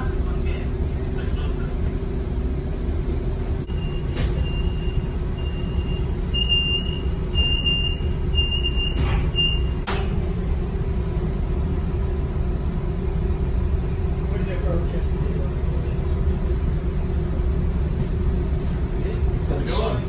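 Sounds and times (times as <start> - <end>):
vehicle warning beeper: 3.7 - 9.8.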